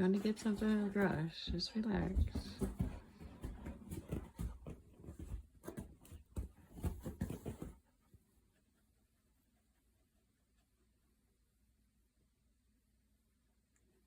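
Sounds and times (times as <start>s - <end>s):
soft knocks and rustles of handling: 0.0s - 8.3s.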